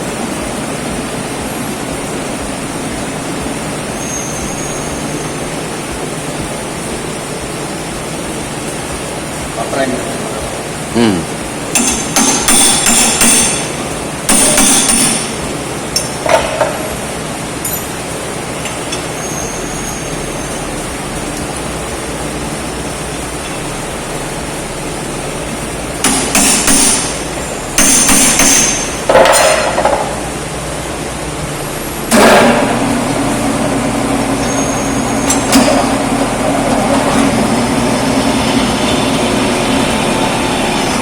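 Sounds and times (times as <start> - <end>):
hammer striking metal: 11.7 - 15.4, 26.0 - 27.2, 27.8 - 30.2.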